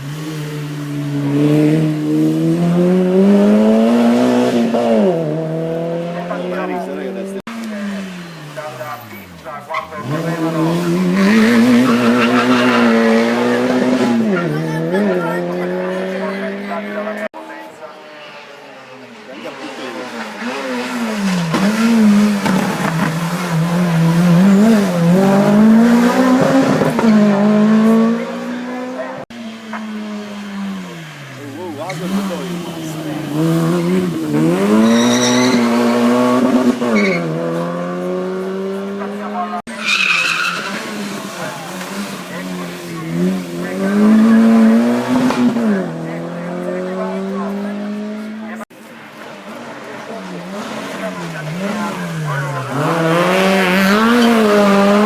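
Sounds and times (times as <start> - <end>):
race car engine accelerating: 0.0 - 17.4, 18.4 - 48.7, 49.6 - 55.0.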